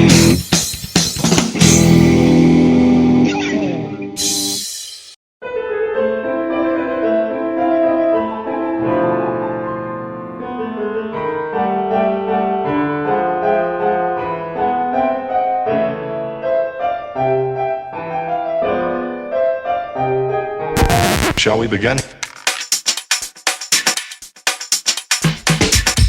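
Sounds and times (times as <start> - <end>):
classical piano music: 5.4 - 20.8.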